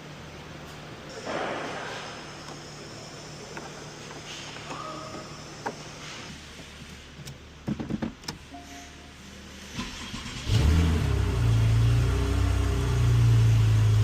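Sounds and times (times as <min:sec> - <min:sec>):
car engine starting and idling: 0:05.4 - 0:14.0.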